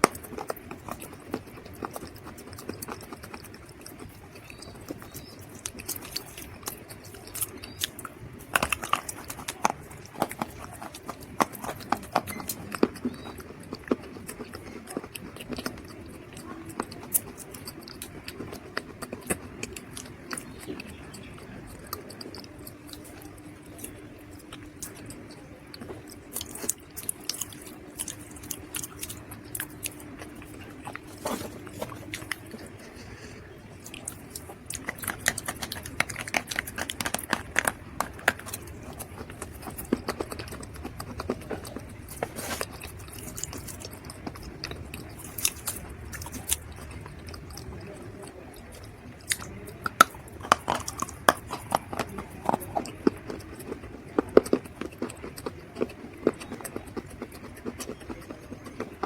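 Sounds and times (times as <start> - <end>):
faint steady hum: 0.0 - 59.0
dry mud crunching and crumbling: 28.1 - 33.3.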